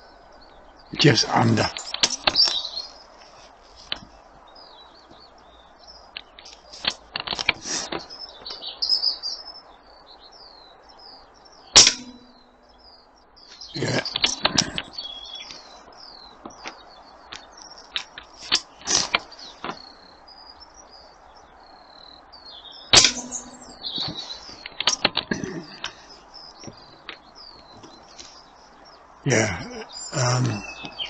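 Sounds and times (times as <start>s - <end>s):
small birds chirping: 0.0s - 31.0s
air rifle shot: 11.8s - 12.4s, 22.9s - 23.7s.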